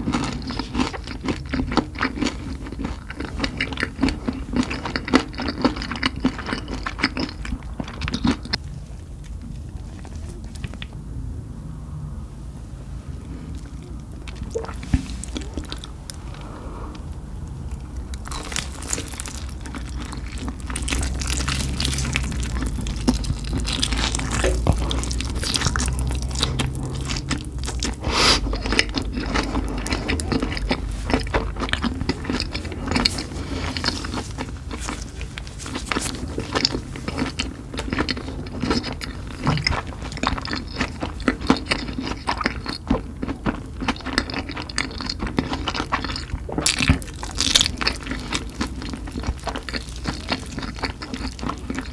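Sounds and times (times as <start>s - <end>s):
person biting and chewing: 17.6s - 51.9s.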